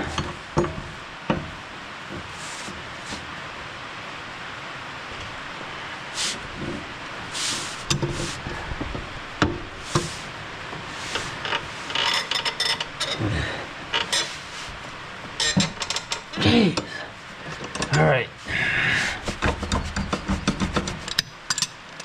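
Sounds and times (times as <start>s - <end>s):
steady background hiss: 0.0s - 22.0s
metal hand tools clanking: 15.3s - 17.0s.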